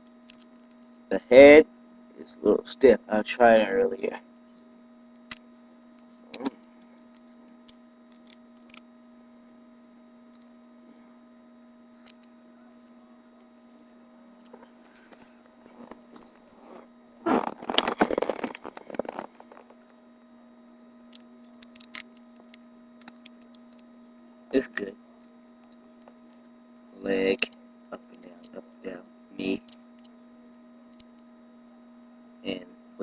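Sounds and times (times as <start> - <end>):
crackling clattering handling noise: 0.0 - 0.9, 14.4 - 20.0, 21.0 - 23.9
electrical hum: 0.0 - 33.0.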